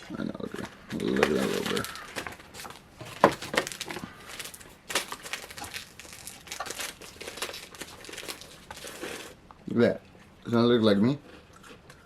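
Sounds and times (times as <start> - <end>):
plastic wrapper crinkling: 0.4 - 9.4.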